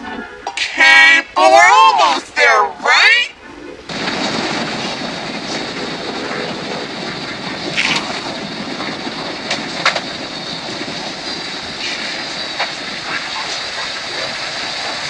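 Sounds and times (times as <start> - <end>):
airplane landing rushing noise: 3.1 - 15.0.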